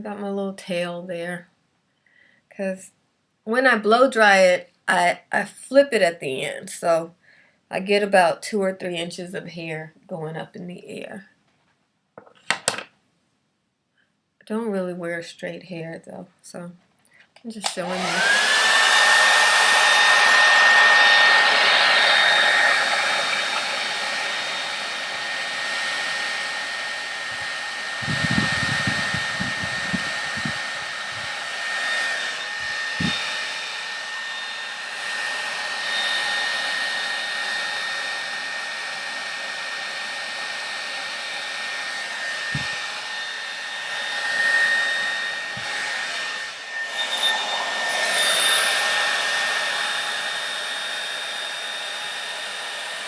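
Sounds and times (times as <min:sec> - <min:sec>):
hair dryer running: 0:17.6 - 0:53.0.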